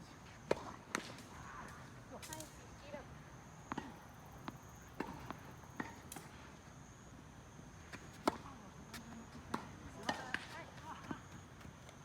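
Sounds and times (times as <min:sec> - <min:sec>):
tennis ball bouncing on court: 0:08.1 - 0:11.2.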